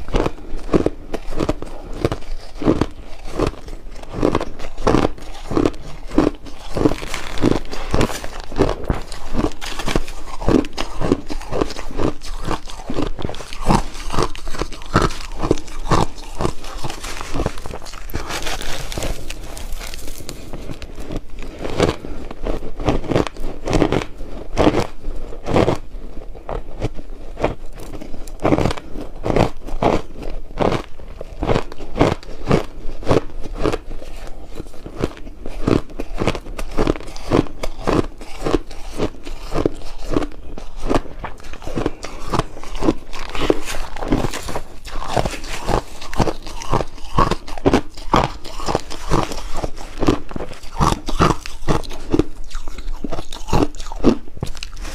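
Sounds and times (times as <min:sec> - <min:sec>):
ice being chewed: 0:00.0 - 0:54.9.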